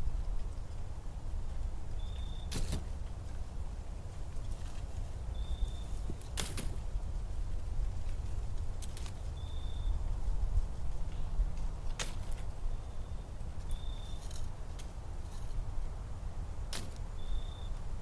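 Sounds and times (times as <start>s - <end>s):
low steady rumble: 0.0s - 18.0s
bird high whistle: 17.2s - 17.8s.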